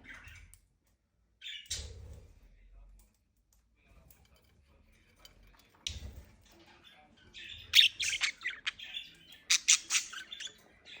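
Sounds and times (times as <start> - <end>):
budgerigars chattering: 7.4 - 11.0.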